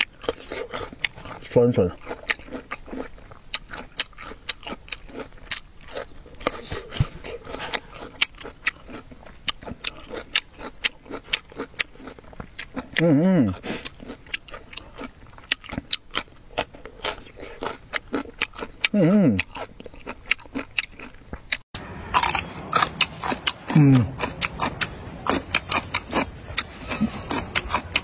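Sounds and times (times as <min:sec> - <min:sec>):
crunching and chewing: 0:00.0 - 0:28.0
person humming mmm: 0:18.9 - 0:19.5, 0:23.4 - 0:24.5, 0:26.7 - 0:27.6.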